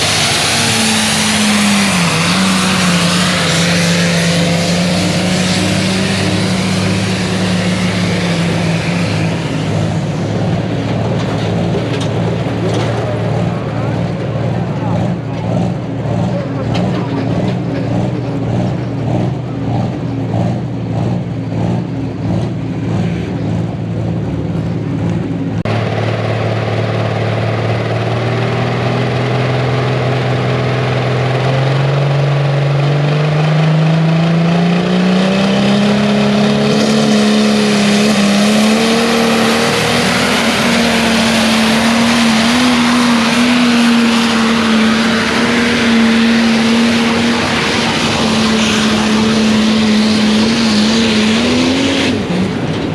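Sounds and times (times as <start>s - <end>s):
loud rush of noise: 0.0s - 52.9s
tractor engine revving: 0.0s - 52.9s.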